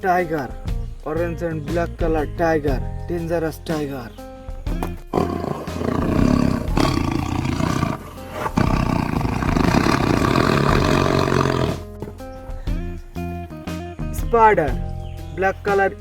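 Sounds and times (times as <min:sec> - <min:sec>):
tiger roaring: 0:05.1 - 0:11.9.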